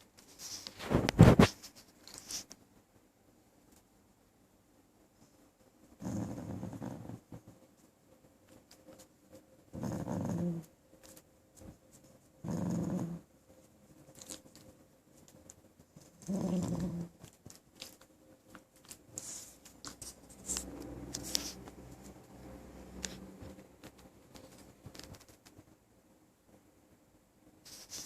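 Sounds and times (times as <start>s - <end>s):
soft scuffling and clicking: 0.0s - 2.9s, 7.2s - 9.5s, 10.6s - 12.4s, 13.6s - 22.4s, 23.0s - 25.8s, 27.6s - 28.0s
puppy growling: 6.0s - 7.4s, 9.7s - 10.7s, 12.4s - 13.3s, 16.0s - 17.4s.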